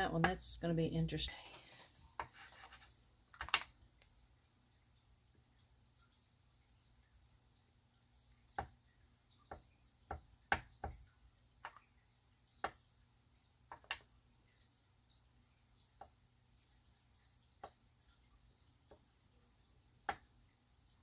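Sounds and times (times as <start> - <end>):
painting tools tapping tabletop: 2.2 - 3.8, 9.4 - 11.0, 13.7 - 14.1.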